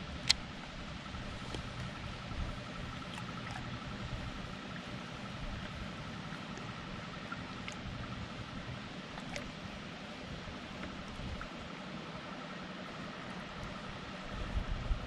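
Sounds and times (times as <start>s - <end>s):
water lapping and trickling: 0.0s - 15.0s
light ticks: 0.2s - 0.4s.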